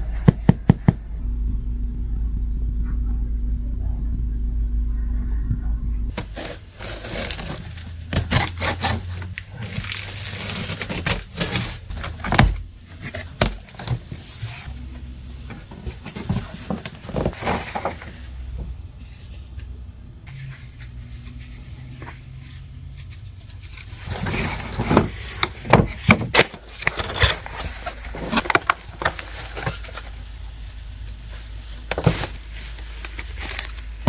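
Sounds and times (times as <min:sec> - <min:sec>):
low rumble with faint hum: 0:00.0 - 0:34.0
packaging crackling and rustling: 0:06.1 - 0:14.8.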